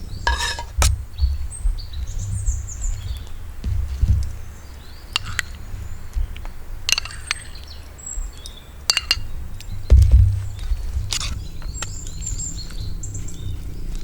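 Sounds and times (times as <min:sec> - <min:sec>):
small birds chirping: 0:00.0 - 0:14.0
wind rumble on microphone: 0:00.0 - 0:14.0
cooking utensils and dishes clinking: 0:00.3 - 0:00.8, 0:08.9 - 0:09.3.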